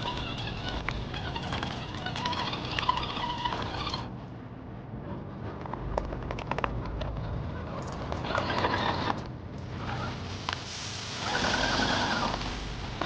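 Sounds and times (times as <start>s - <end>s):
sharp clicks and scrapes: 0.0s - 4.1s, 5.6s - 13.0s
steady low rumble: 0.0s - 8.3s.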